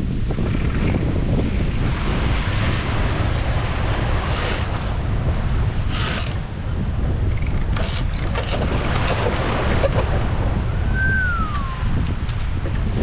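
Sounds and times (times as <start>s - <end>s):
sea noise: 0.0s - 13.0s
wind buffeting microphone: 0.0s - 13.0s
downward sliding whistle tone: 10.8s - 12.0s.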